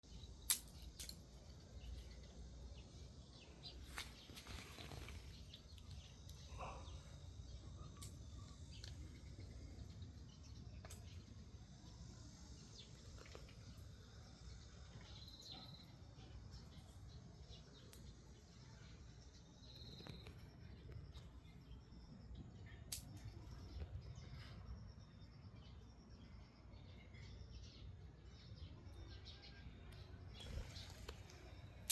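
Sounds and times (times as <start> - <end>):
faint low background hum: 0.0 - 31.9
bean pods snapping open: 0.5 - 1.4.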